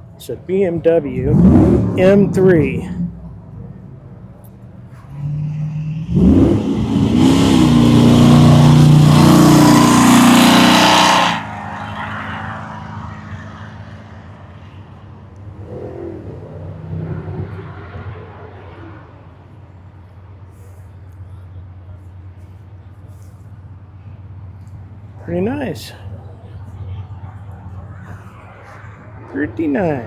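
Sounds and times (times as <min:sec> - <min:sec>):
car engine revving: 0:00.6 - 0:19.3.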